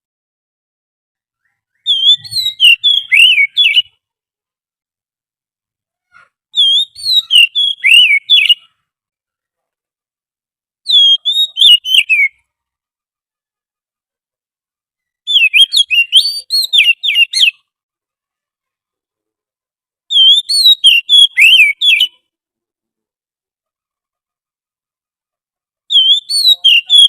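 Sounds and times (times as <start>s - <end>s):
bird whistled song: 1.3s - 4.0s, 6.6s - 8.8s, 10.8s - 12.5s, 15.0s - 17.7s, 20.1s - 22.3s, 25.9s - 27.0s.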